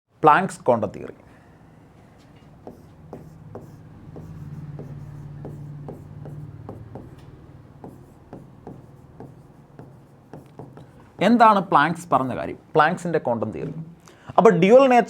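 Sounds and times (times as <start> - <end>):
pen tapping and scratching: 2.6 - 11.4.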